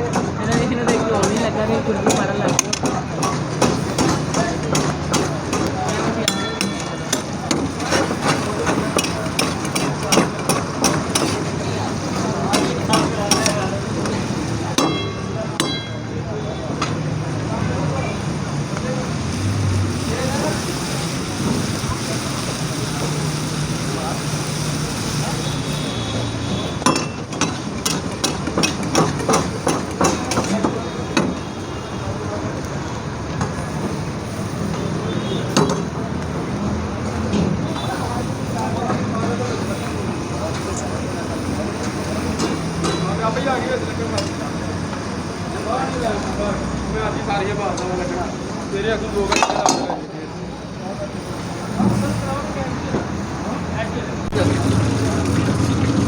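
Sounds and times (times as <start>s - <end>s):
sharp cooking knocks: 2.1s - 11.5s, 14.8s - 16.0s, 26.8s - 31.4s.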